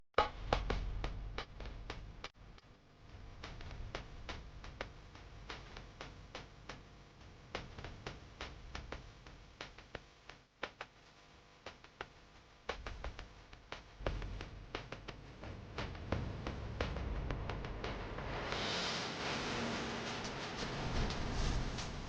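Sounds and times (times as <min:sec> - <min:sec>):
faint low rumble: 0:12.8 - 0:22.0.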